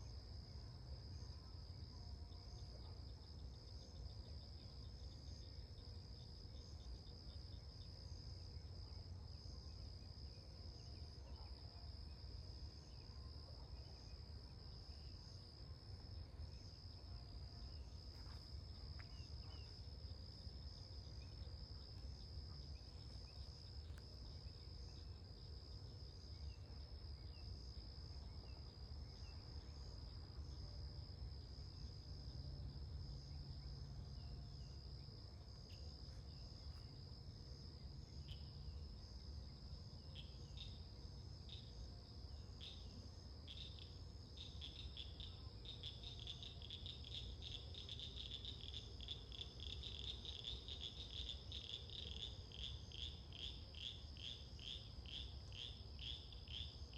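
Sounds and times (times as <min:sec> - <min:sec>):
high-pitched insect trill: 0:37.8 - 0:56.9.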